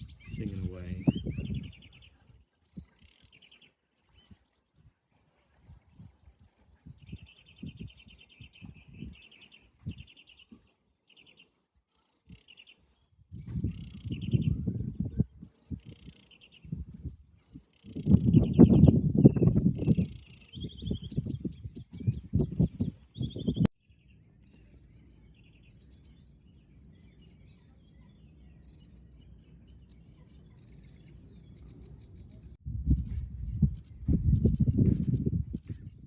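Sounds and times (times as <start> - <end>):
low rumble on microphone: 0.0 - 2.9, 4.2 - 10.6, 13.3 - 24.0, 31.4 - 36.0
warbler singing: 0.0 - 36.0.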